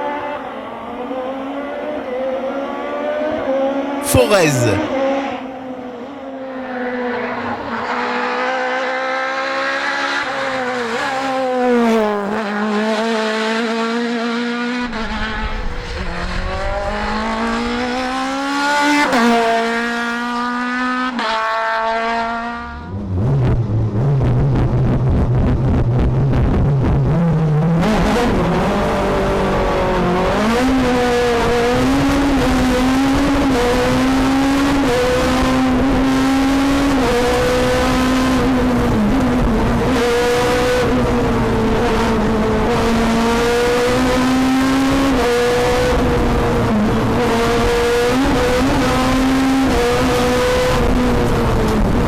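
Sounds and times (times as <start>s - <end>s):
rally car engine revving: 27.1s - 52.0s.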